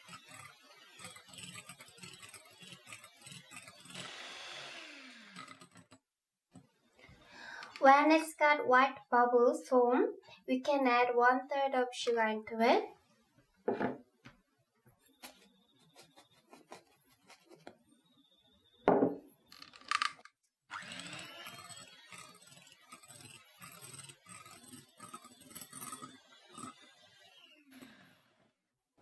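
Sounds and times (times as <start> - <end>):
whisk scraping in a bowl: 0.0 - 5.8, 21.1 - 26.8.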